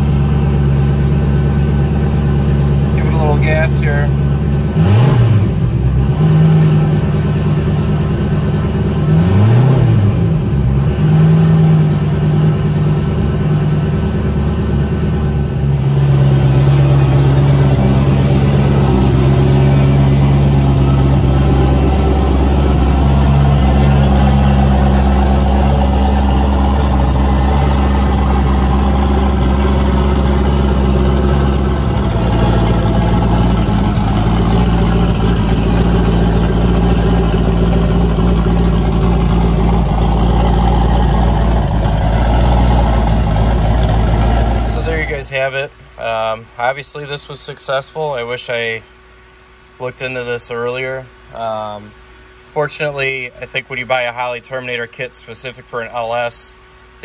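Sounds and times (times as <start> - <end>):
engine idling fast: 0.0 - 45.5.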